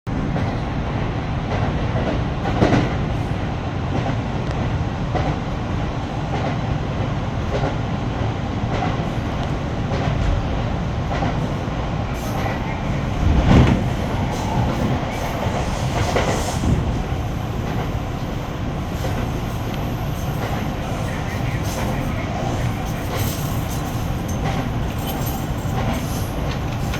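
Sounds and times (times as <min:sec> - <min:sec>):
train wheels rumbling on rails: 0:00.1 - 0:26.9
clacks over rail joints: 0:03.9 - 0:05.5, 0:07.4 - 0:11.6, 0:12.2 - 0:26.9.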